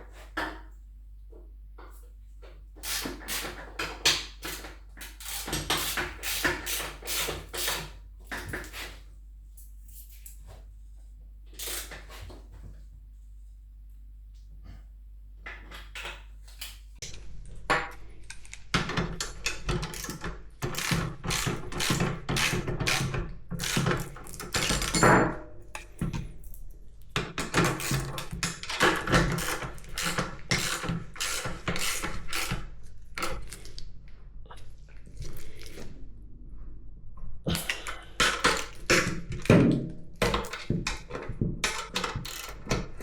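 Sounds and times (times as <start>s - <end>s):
metal parts knocking and clinking: 17.8s - 32.6s, 40.2s - 43.0s.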